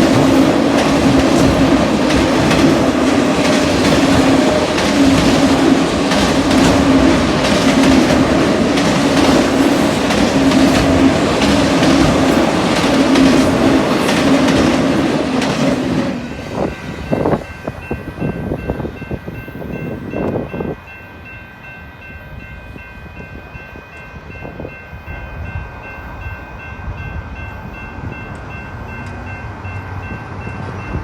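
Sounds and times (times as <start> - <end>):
wheels clicking over rail joints: 0.0 - 16.4
freight train rumbling past: 0.0 - 31.0
wind gusts: 0.0 - 31.0.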